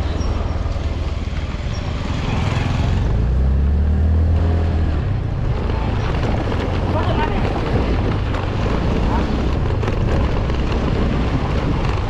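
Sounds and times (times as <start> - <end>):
vehicle engine driving: 0.0 - 12.0
wind noise on microphone: 4.9 - 12.0.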